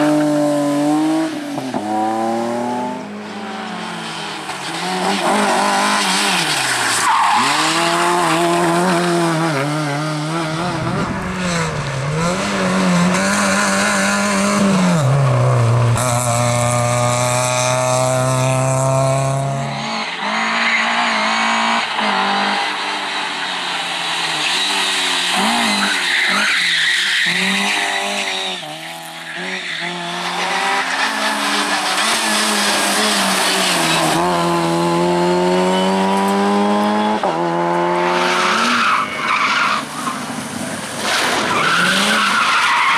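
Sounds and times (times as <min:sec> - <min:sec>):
car engines revving: 0:00.0 - 0:42.9.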